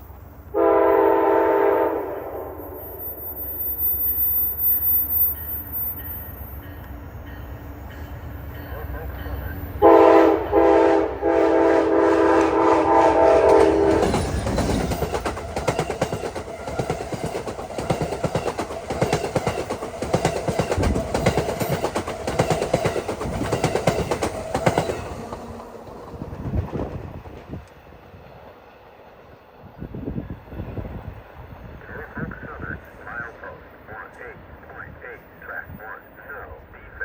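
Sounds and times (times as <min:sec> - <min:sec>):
train horn chord: 0:00.5 - 0:02.6, 0:09.8 - 0:14.2
train wheels clacking: 0:12.0 - 0:27.8.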